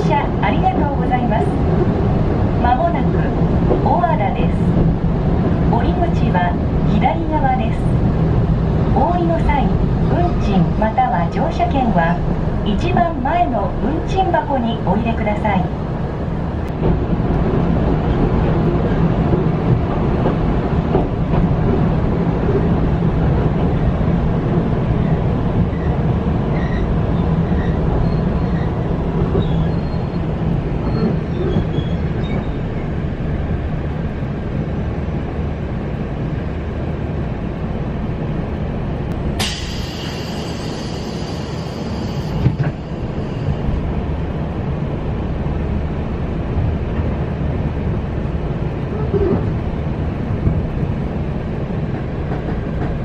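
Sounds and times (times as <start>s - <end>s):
train interior rumble: 0.0s - 53.0s.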